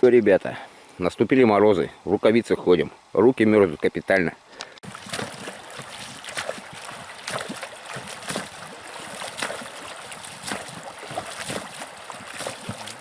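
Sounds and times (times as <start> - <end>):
water running in a stream: 4.8 - 13.0.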